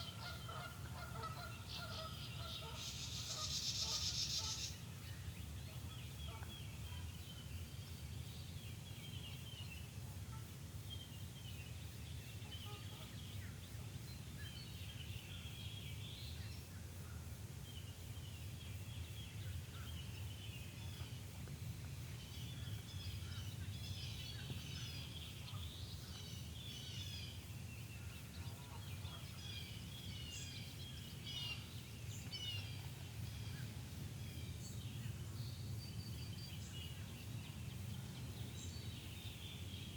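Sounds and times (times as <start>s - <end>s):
birds chirping and trilling: 0.0s - 4.8s.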